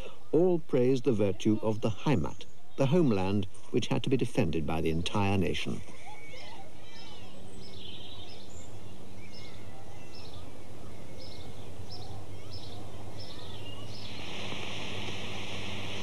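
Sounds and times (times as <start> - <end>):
birds chirping: 0.0 - 16.0
steady hiss: 13.5 - 16.0.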